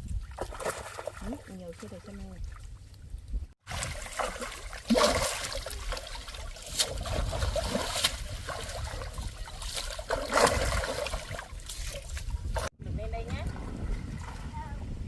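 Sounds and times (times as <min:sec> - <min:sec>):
water splashing and trickling: 0:00.0 - 0:15.0
sharp splashes of fish: 0:03.7 - 0:12.1.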